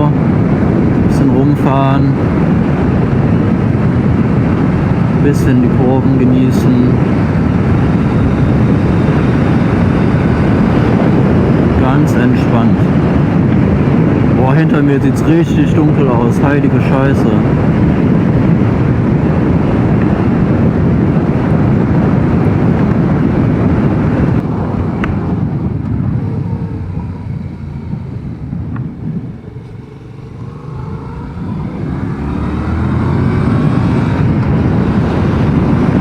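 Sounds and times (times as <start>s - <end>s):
motorcycle engine running: 6.1s - 11.8s, 17.4s - 36.0s.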